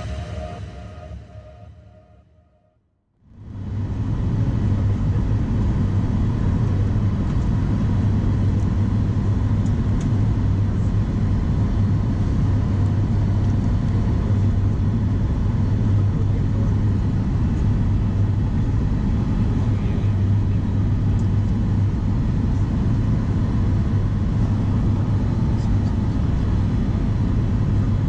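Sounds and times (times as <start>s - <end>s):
airliner cabin engine roar: 0.0s - 2.1s, 3.3s - 28.0s
deep hum: 0.0s - 2.4s.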